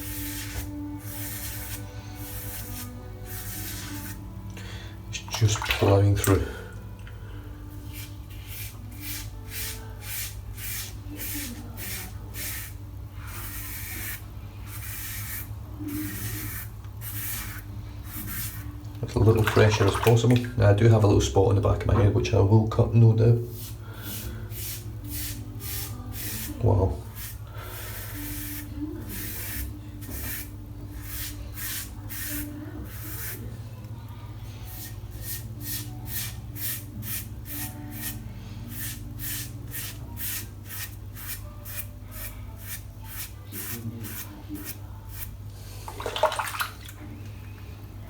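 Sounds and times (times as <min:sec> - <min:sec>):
razor scraping stubble: 0:00.0 - 0:04.2, 0:07.9 - 0:19.4, 0:23.5 - 0:33.6, 0:34.6 - 0:45.4.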